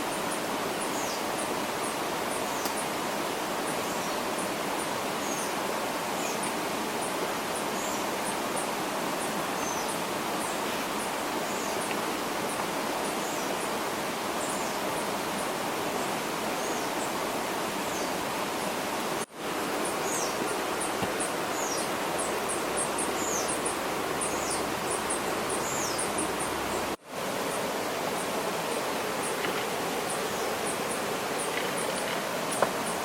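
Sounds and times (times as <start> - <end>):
flowing water rushing: 0.0 - 33.0
small birds chirping: 19.8 - 33.0.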